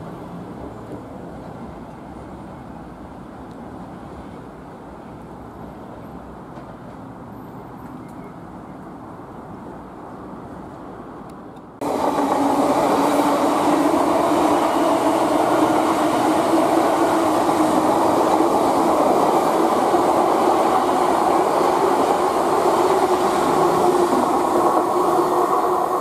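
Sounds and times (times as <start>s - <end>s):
train wheels running on rail: 11.6s - 26.0s.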